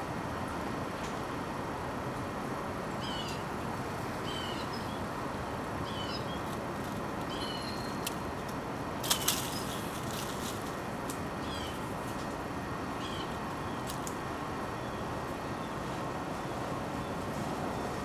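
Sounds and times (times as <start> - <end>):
outdoor background noise: 0.0 - 18.0
bird chirping: 4.2 - 5.0, 5.9 - 6.4, 7.3 - 8.0.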